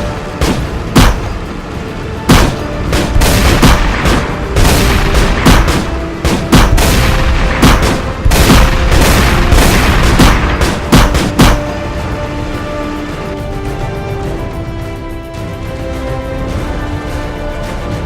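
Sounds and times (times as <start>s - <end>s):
action music score: 0.0s - 18.0s
gunfire sound effects: 0.4s - 1.3s, 2.3s - 11.7s
heavy booms: 2.3s - 11.8s.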